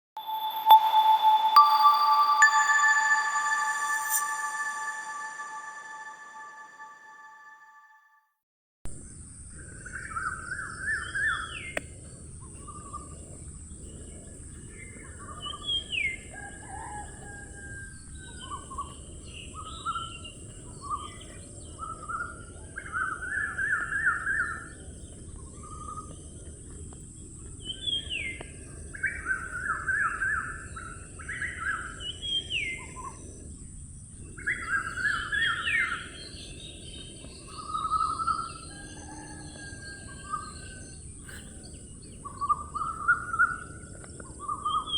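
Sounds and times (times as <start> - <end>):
birdsong trills and whistles: 34.4 - 43.7.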